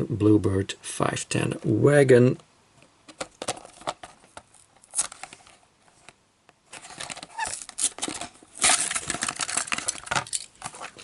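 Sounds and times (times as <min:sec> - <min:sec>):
plastic packaging clicks: 0:03.1 - 0:05.5, 0:06.8 - 0:11.0
plastic packaging crinkling: 0:03.2 - 0:06.1, 0:06.7 - 0:11.0.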